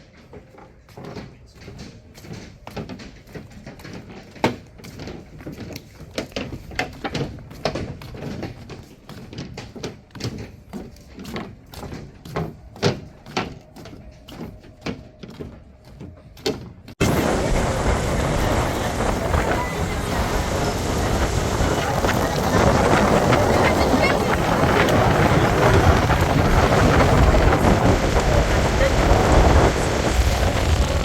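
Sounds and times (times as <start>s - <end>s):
loud steady rushing noise: 17.0s - 31.0s.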